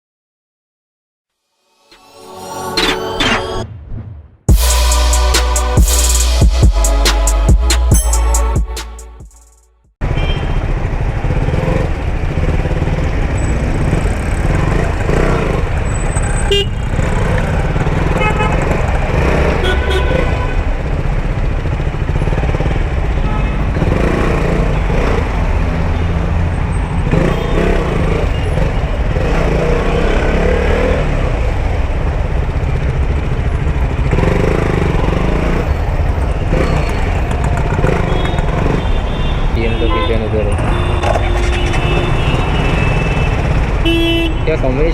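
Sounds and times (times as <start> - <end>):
motorcycle engine: 4.5 - 39.6.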